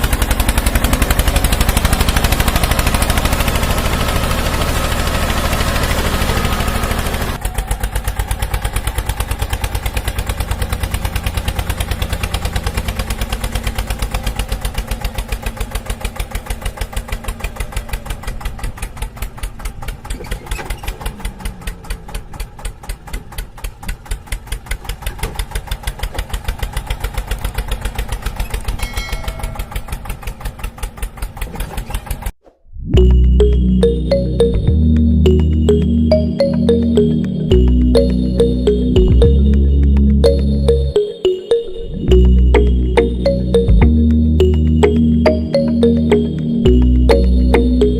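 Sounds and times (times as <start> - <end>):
small engine chugging: 0.0 - 32.3.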